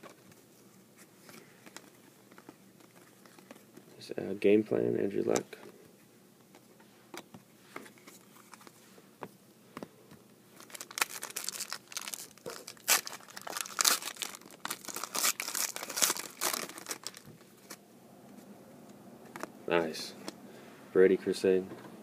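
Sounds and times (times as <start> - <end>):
foil wrapper tearing and crinkling: 10.6 - 17.3.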